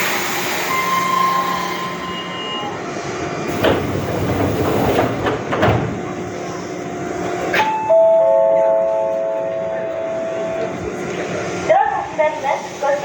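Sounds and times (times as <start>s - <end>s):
electric train humming: 0.0s - 13.0s
wheels clacking over rail joints: 3.5s - 7.7s.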